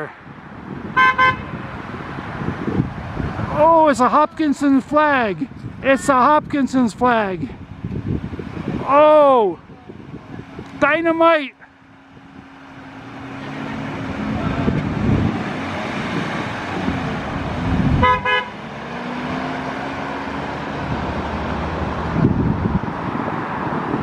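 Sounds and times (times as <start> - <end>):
vehicles driving past: 0.0 - 24.0
car horn toot: 1.0 - 1.6, 18.0 - 18.6.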